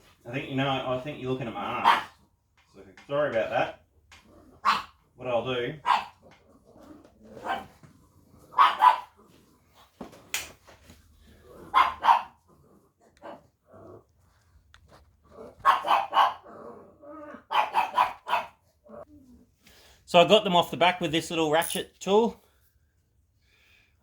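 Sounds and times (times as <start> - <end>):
dog barking: 1.8 - 2.2, 4.6 - 5.0, 5.8 - 6.2, 7.4 - 7.7, 8.5 - 9.2, 11.7 - 12.4, 15.6 - 16.5, 17.4 - 18.6.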